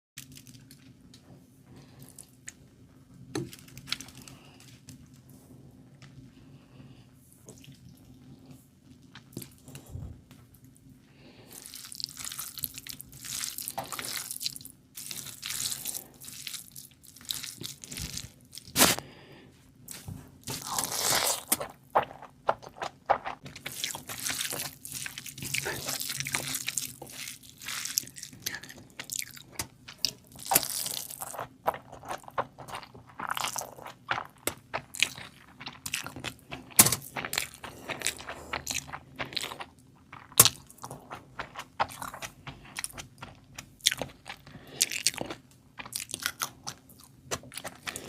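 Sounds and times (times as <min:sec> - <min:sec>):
wet chewing: 0:11.5 - 0:19.0, 0:20.5 - 0:48.0.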